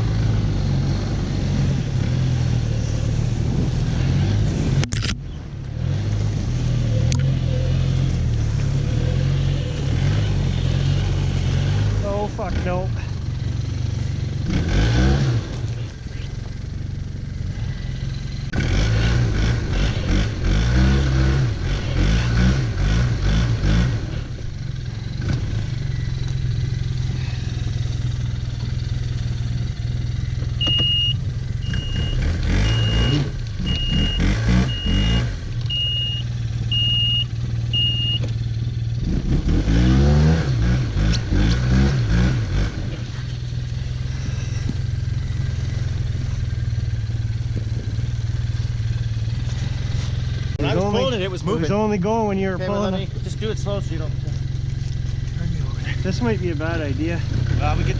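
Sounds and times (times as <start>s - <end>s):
snowmobile engine idling and revving: 0.0s - 57.9s
short electronic beeps: 30.6s - 38.3s.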